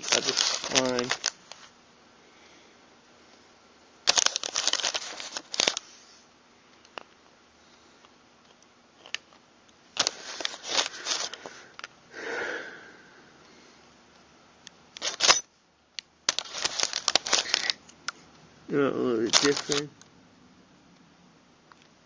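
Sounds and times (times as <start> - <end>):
metal parts clicking and rattling: 0.0 - 1.3, 15.0 - 15.5, 16.3 - 17.8, 19.3 - 19.9
person sniffing: 10.2 - 13.2.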